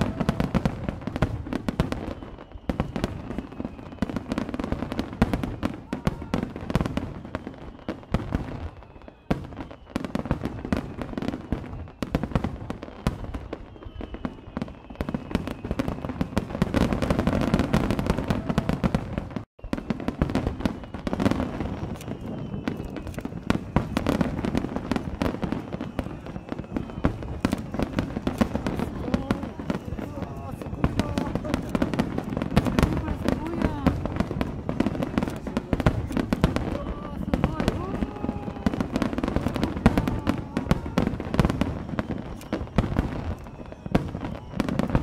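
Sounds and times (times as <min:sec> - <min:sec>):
firework shells bursting: 0:16.8 - 0:45.0.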